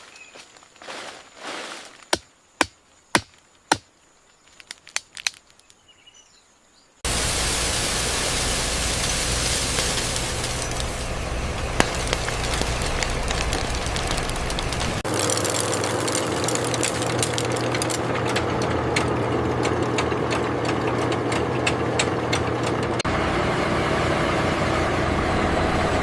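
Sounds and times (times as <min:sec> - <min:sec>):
factory machinery humming: 0:07.0 - 0:26.0.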